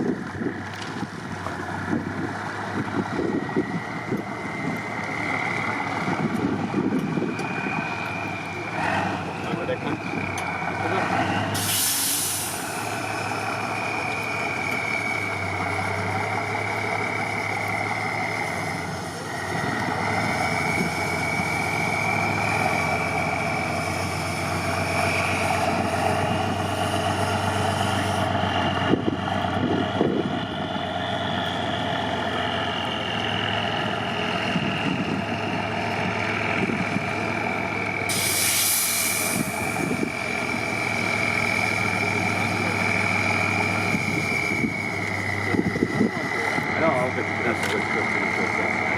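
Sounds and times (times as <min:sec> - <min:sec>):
diesel truck engine whining: 0:00.0 - 0:48.9
hiss bursts: 0:11.5 - 0:13.0, 0:38.1 - 0:39.9.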